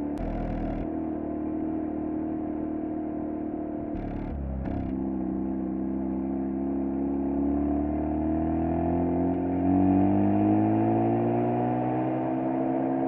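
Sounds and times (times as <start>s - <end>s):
rotary engine revving: 0.2s - 0.9s, 3.9s - 5.0s.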